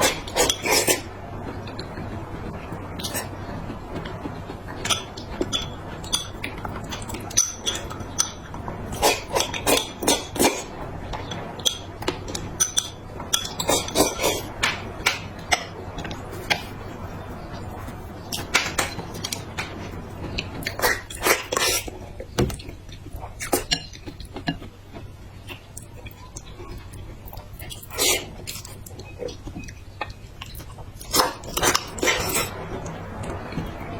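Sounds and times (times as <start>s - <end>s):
eating sounds: 0.0s - 33.7s
utensils clinking on plates: 4.8s - 10.6s.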